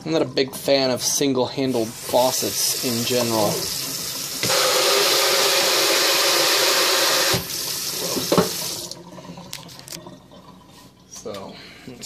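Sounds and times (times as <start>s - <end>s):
faucet running water into sink: 0.1s - 11.0s.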